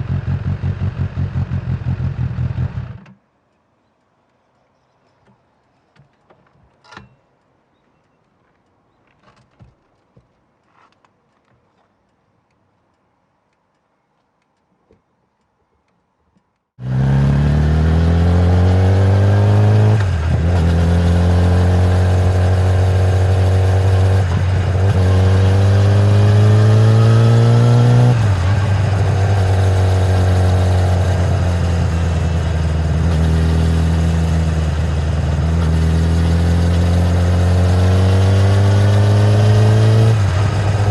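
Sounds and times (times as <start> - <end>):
motorcycle engine accelerating: 0.0 - 3.2, 16.8 - 40.9
faint clicks: 3.5 - 16.7.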